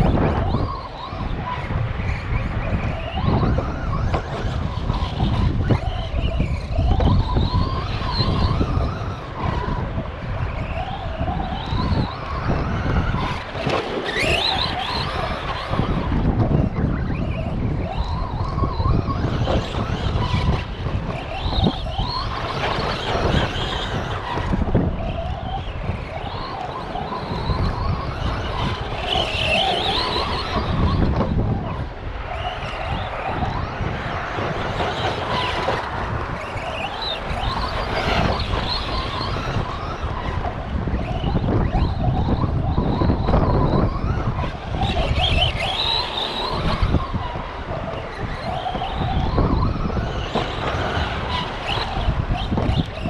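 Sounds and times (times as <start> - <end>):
electric motor whining: 0.0 - 53.0
wind on microphone: 0.0 - 53.0.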